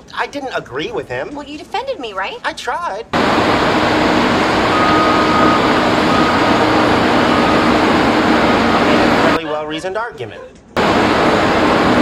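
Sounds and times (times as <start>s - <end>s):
heavy vehicle running: 3.2s - 9.4s, 10.8s - 12.0s
reversing alarm beeping: 3.2s - 9.4s.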